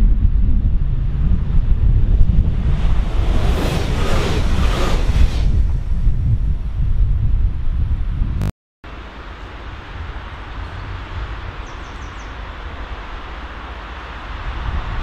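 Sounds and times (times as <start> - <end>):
passing train rumble: 0.0 - 6.8, 8.9 - 15.0
distant train running noise: 8.9 - 15.0.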